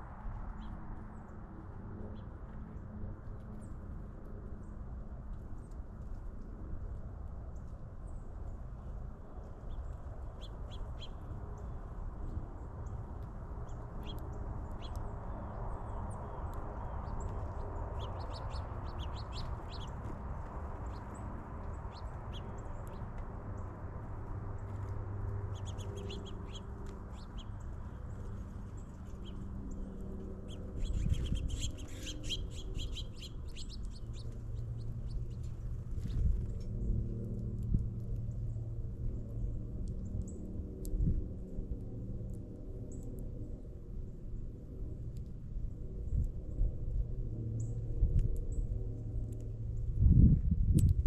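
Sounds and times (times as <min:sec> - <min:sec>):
low background rumble: 0:08.4 - 0:51.0
small birds chirping: 0:09.4 - 0:36.9.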